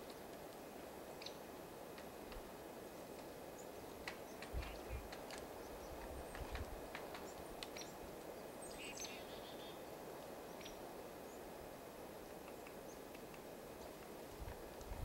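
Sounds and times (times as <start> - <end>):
faint outdoor ambience: 0.0 - 15.0
small clicks: 12.3 - 14.1.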